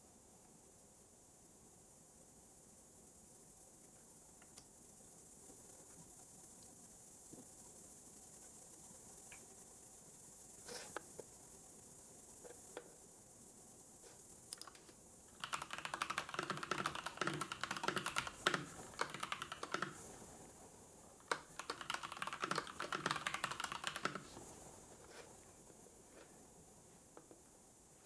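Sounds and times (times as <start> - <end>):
typing on computer keyboard: 14.6 - 20.3, 21.2 - 24.5.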